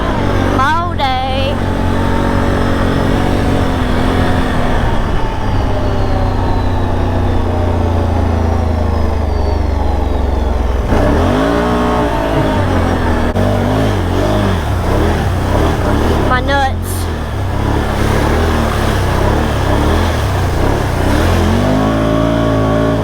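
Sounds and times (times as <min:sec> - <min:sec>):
atv engine revving: 0:00.0 - 0:23.0.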